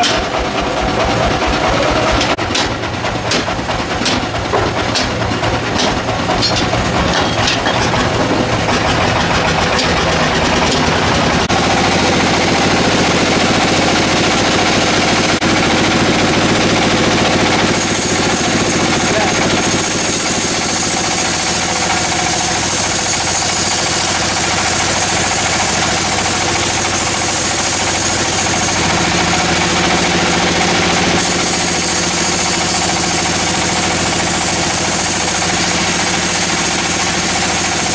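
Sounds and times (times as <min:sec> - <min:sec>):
sharp clacks: 0:00.0 - 0:11.5
sawmill machinery droning: 0:00.0 - 0:37.9.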